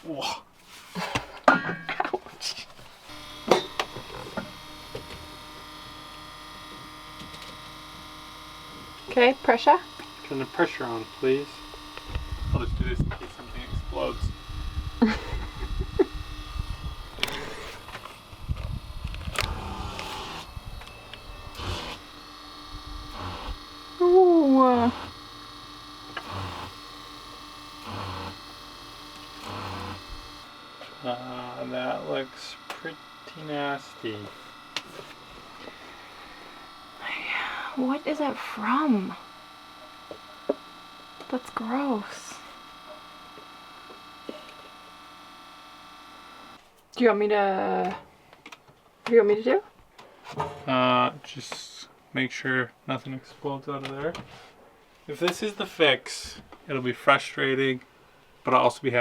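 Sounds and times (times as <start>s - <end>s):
electric hum: 1.0s - 48.1s.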